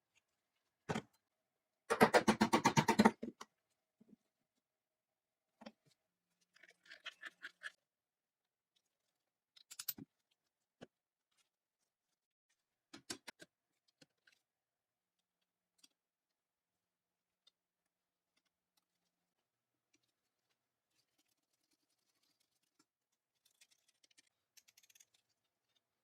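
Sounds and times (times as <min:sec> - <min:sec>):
small parts clicking and tapping: 0:08.8 - 0:11.0, 0:19.8 - 0:26.0.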